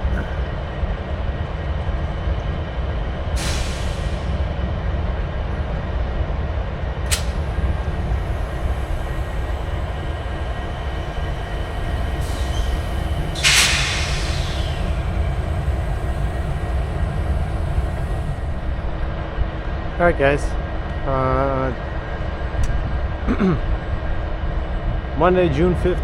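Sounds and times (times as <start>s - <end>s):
train idling rumble: 0.0s - 26.0s
air hiss: 3.4s - 4.3s, 11.6s - 18.4s.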